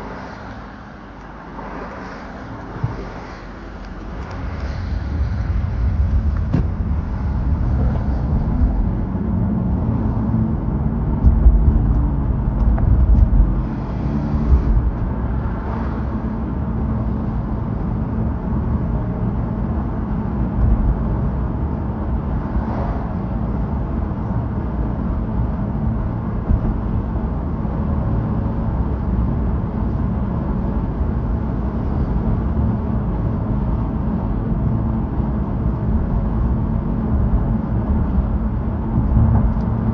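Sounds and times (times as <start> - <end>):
car road noise rumble: 0.0 - 39.9.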